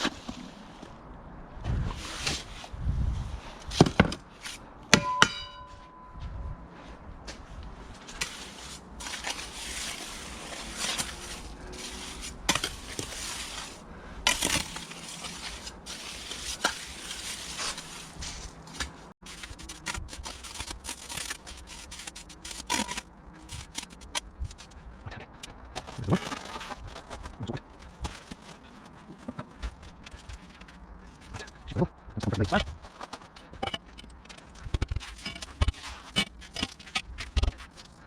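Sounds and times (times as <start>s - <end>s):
hand tools scraping stone: 8.1s - 24.2s, 33.6s - 38.0s.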